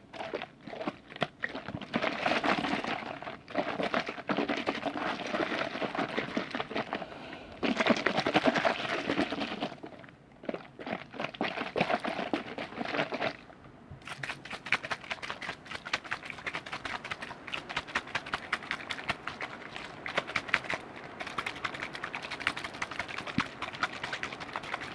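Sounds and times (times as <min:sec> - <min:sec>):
wet liquid crackling and clicking: 0:14.0 - 0:24.9.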